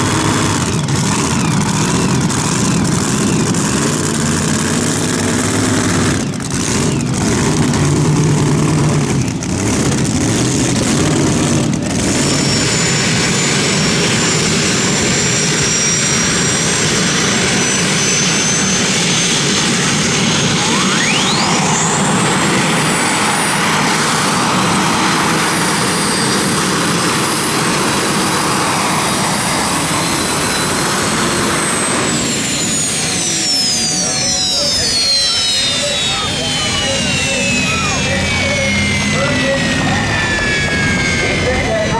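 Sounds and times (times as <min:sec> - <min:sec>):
high whine: 0:00.0 - 0:41.9
tractor engine running hard: 0:00.0 - 0:41.9.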